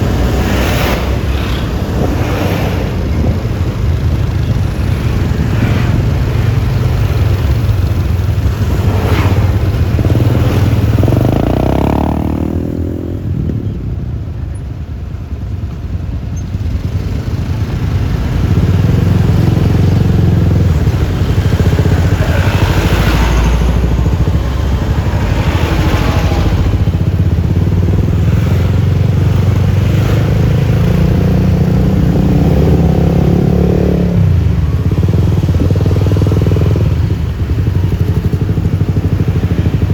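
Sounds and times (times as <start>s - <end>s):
wind: 0.0s - 39.9s
scooter engine: 16.6s - 39.9s.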